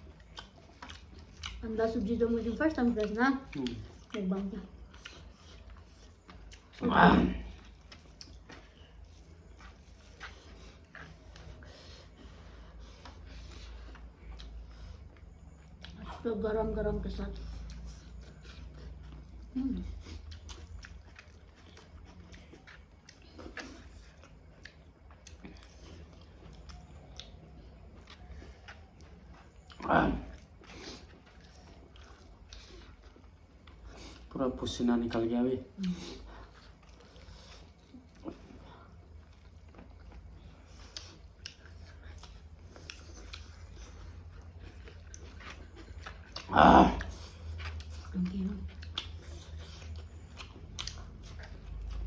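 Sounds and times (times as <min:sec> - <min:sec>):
person chewing food: 0:00.0 - 0:16.3, 0:17.0 - 0:52.0
steady low hum: 0:00.0 - 0:52.0.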